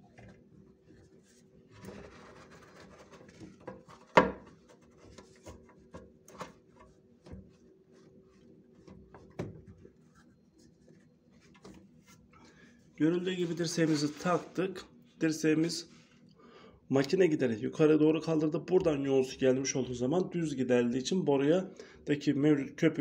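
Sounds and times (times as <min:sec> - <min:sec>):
pipe fitting rubbing and scraping: 0:01.1 - 0:06.5, 0:13.2 - 0:14.6.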